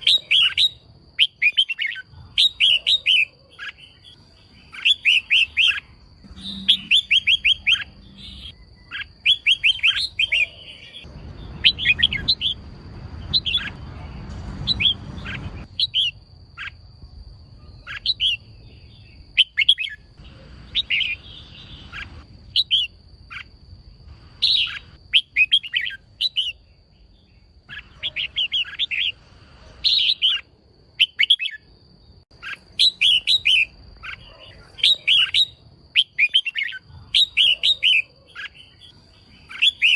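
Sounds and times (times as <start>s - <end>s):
bird high chirping call: 0.0s - 16.8s, 17.5s - 23.5s, 24.4s - 29.2s, 29.8s - 31.7s, 32.3s - 39.9s
faint steady high tone: 3.9s - 11.8s.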